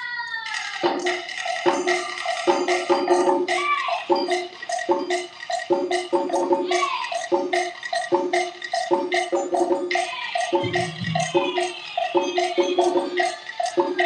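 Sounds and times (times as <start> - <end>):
wooden knocks beat: 0.8 - 14.0.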